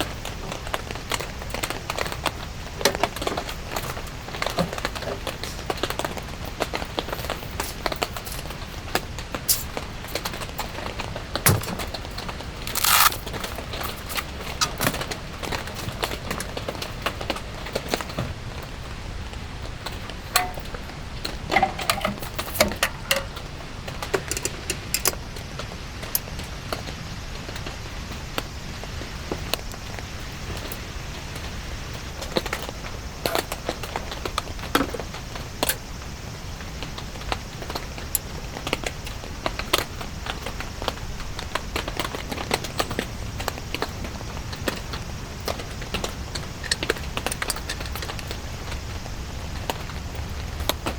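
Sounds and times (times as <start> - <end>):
rain hissing: 0.0 - 50.9
small clinks: 46.0 - 48.4.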